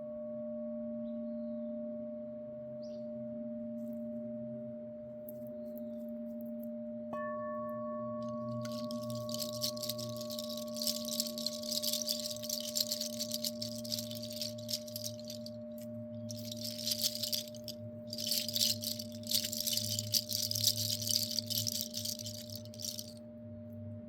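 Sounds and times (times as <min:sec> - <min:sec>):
hand rattle shaken: 0:08.3 - 0:23.1.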